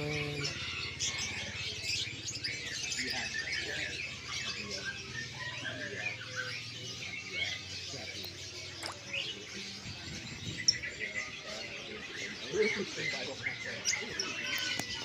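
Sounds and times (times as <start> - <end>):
songbirds chirping and calling: 0.0 - 15.0.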